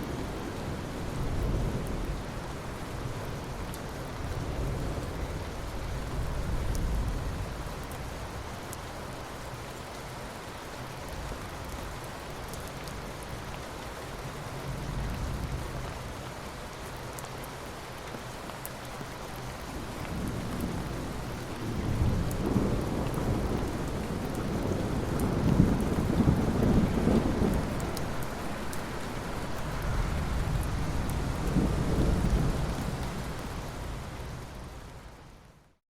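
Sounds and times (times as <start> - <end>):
steady rain falling: 0.0 - 35.8
rolling thunder: 19.9 - 34.5.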